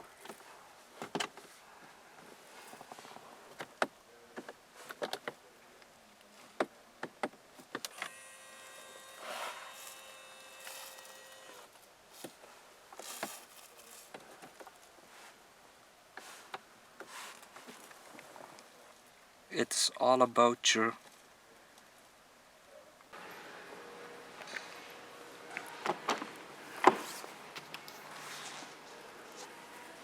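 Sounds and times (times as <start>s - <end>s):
electric seat motor whining: 7.9s - 11.7s, 23.2s - 30.0s.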